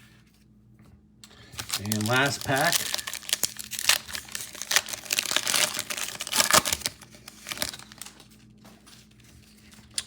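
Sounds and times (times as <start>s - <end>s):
plastic wrapper tearing and crinkling: 1.4s - 8.3s.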